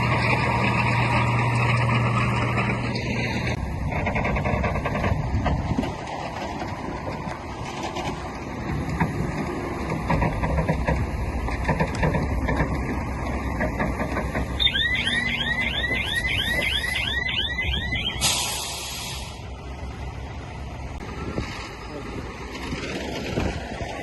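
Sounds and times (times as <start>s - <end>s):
heavy machinery engine rumble: 0.0s - 24.0s
reversing alarm chirps: 14.6s - 19.4s
short hiss: 18.2s - 19.4s.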